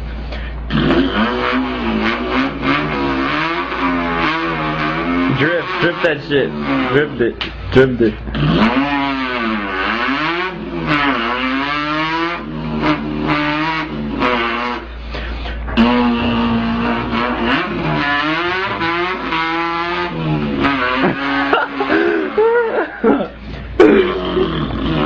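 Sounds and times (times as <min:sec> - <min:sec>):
person imitating car engine: 0:00.3 - 0:25.0.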